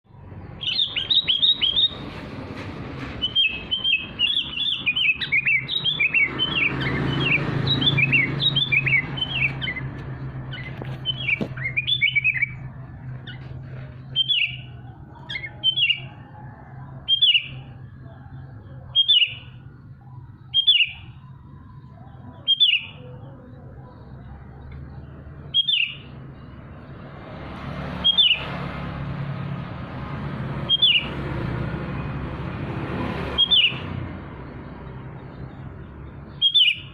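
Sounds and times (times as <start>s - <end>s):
songbird chirping: 0.1s - 36.9s.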